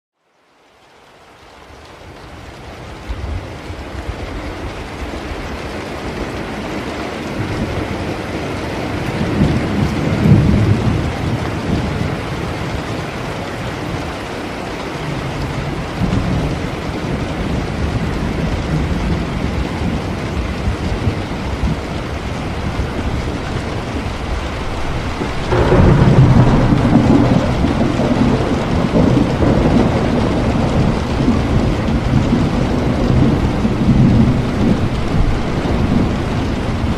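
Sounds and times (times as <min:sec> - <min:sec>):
heavy rain: 0:00.2 - 0:36.9
rolling thunder: 0:07.3 - 0:13.5, 0:15.2 - 0:36.9.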